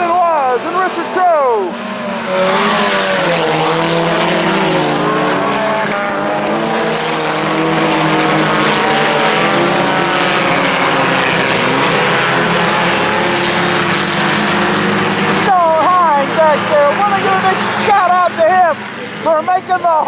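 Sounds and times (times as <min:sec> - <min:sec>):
race car engines revving: 0:00.0 - 0:20.0.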